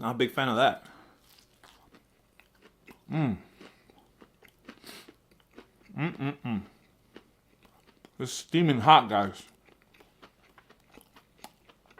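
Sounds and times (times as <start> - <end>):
crunchy chewing: 1.2 - 8.2, 9.2 - 11.9
person humming: 3.1 - 3.5, 5.9 - 6.8.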